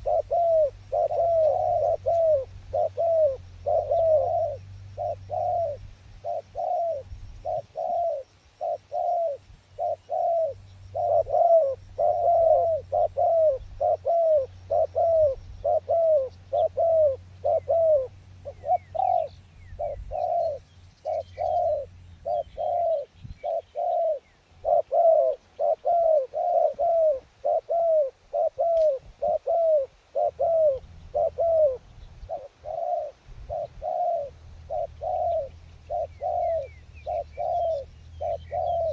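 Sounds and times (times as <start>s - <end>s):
doves cooing: 0.0s - 38.9s
low wind rumble: 26.8s - 38.9s.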